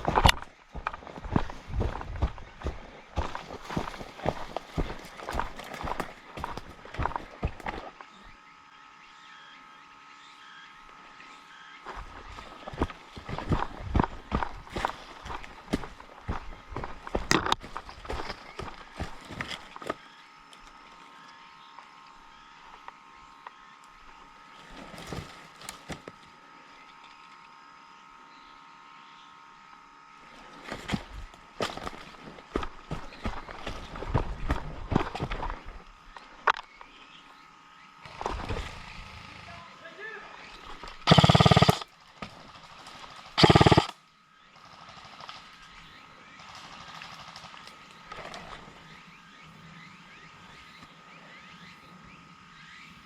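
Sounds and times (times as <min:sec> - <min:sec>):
footsteps on forest floor: 0:00.0 - 0:08.0, 0:11.9 - 0:20.0
faint high hum: 0:00.0 - 0:53.0
airsoft gun full-auto bursts: 0:41.1 - 0:41.9, 0:43.4 - 0:44.0.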